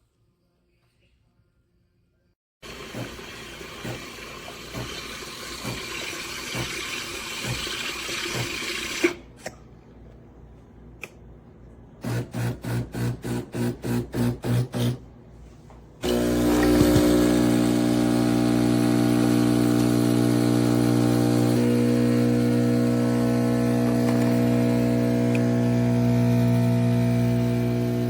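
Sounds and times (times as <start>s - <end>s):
pump pulsing rapidly: 2.6s - 9.1s, 16.0s - 28.0s
espresso machine rushing steam: 16.0s - 28.0s
loud steady pump hum: 16.0s - 28.0s.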